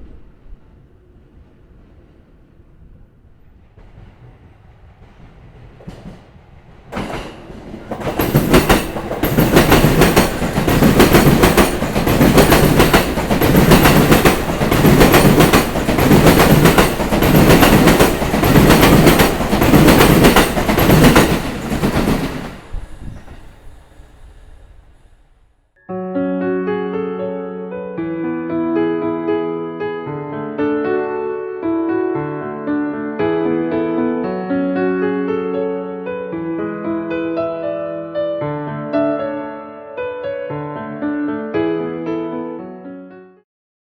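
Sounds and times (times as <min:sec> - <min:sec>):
train wheels clacking on rail joints: 0:03.7 - 0:24.8.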